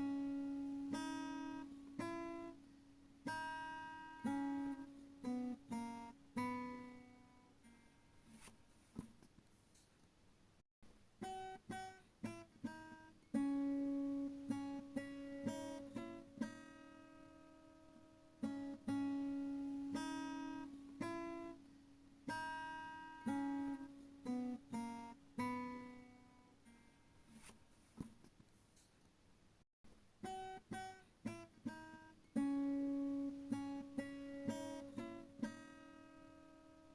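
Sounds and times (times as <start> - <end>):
acoustic guitar music: 0.0 - 9.0, 11.2 - 28.0, 30.2 - 36.9.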